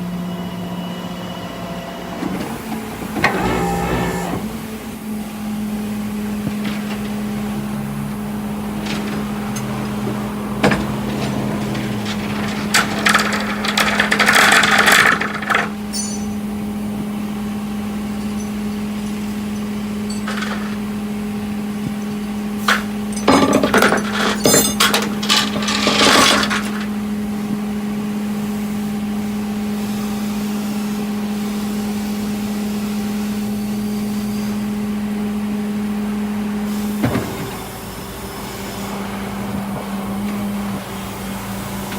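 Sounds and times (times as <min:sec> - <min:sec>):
metallic clanking and rattling: 0:06.0 - 0:16.8, 0:17.9 - 0:27.1.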